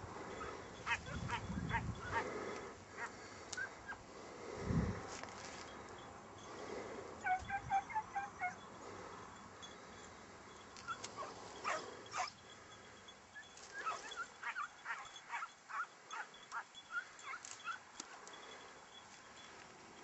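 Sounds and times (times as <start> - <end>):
hound baying: 0.2 - 4.0, 7.2 - 8.9, 10.8 - 12.4, 13.3 - 17.9.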